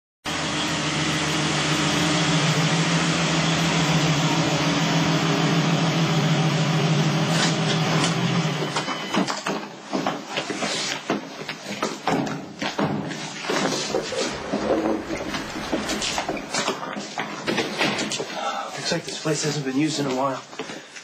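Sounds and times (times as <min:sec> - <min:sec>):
car engine running: 0:13.8 - 0:16.7.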